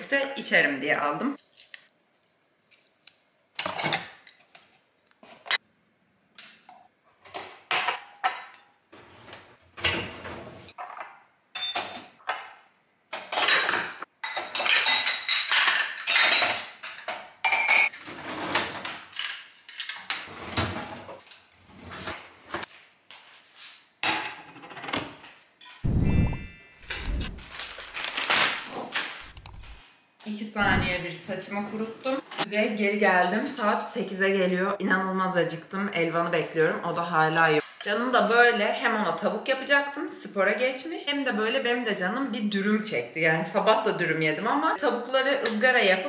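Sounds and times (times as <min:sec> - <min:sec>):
ceramic dishes clattering: 0:13.2 - 0:17.9.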